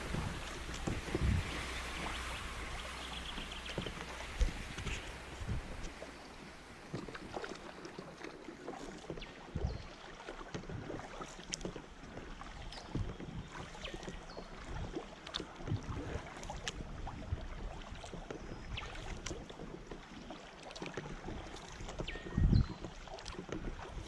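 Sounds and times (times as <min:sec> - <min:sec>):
high whistled notes: 0:00.0 - 0:07.6
paddle splashing in water: 0:00.0 - 0:24.0
river water noise: 0:00.0 - 0:24.0.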